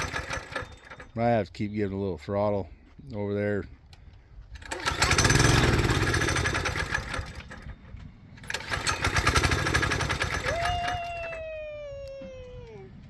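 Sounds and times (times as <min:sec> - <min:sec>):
vehicle engine revving: 0:04.9 - 0:07.0
long falling whine: 0:10.4 - 0:12.9.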